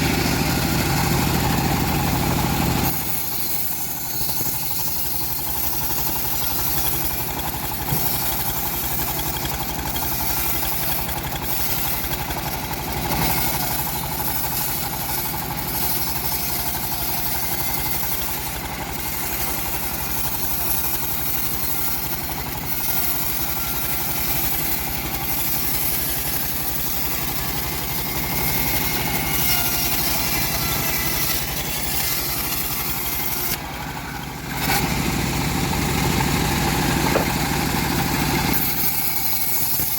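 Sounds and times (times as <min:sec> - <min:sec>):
bandsaw mill sawing wood: 0:00.0 - 0:39.9.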